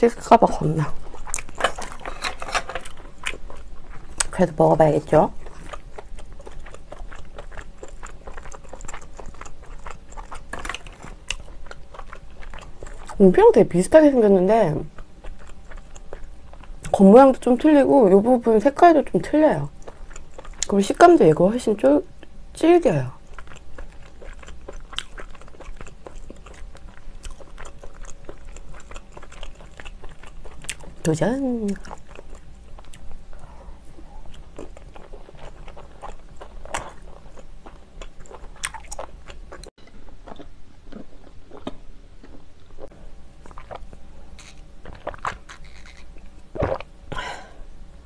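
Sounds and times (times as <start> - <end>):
chewing with wet mouth clicks: 1.0 - 4.4, 5.3 - 13.2, 14.9 - 17.0, 19.7 - 20.8, 23.2 - 33.5, 34.2 - 46.9.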